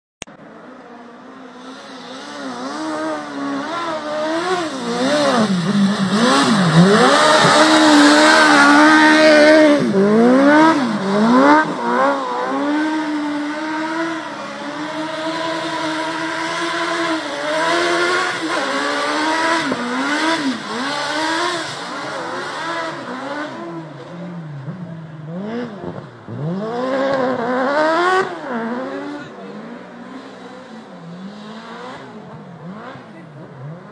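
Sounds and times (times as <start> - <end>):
car engine revving: 0.4 - 33.9
loud rushing noise: 1.6 - 12.8.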